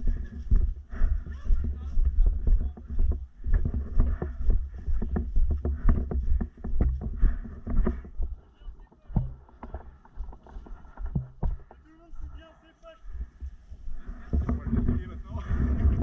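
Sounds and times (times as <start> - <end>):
footsteps: 0.0 - 16.0
clothing and gear rustling: 2.3 - 12.0.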